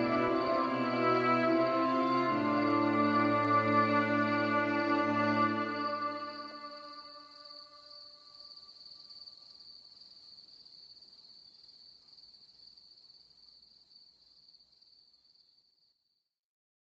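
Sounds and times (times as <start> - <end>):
ambient music held note: 0.0 - 7.4
insect chorus trilling: 0.0 - 15.5.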